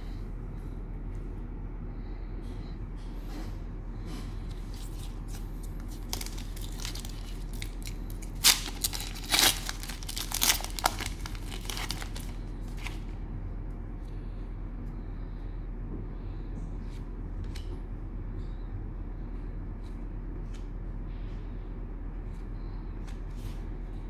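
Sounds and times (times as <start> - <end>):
cellophane wrapper crinkling: 4.6 - 13.0.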